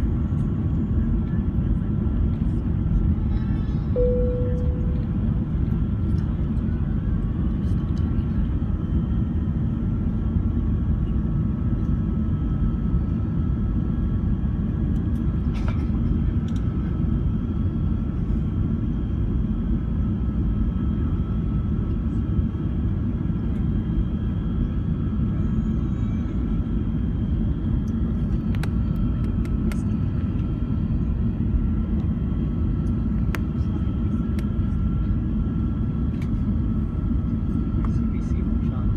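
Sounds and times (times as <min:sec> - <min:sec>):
airliner cabin engine roar: 0:00.0 - 0:38.9
faint steady whine: 0:03.9 - 0:07.8.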